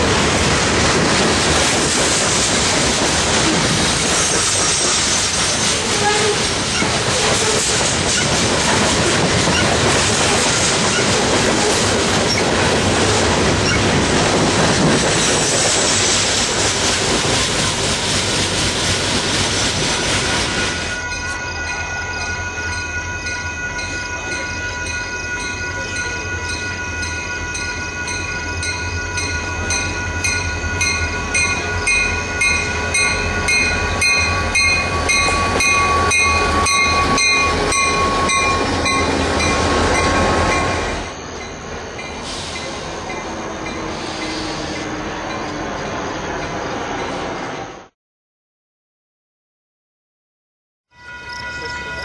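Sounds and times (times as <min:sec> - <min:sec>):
freight train passing: 0:00.0 - 0:48.0, 0:50.9 - 0:52.0
repeating ringing bell: 0:50.9 - 0:52.0.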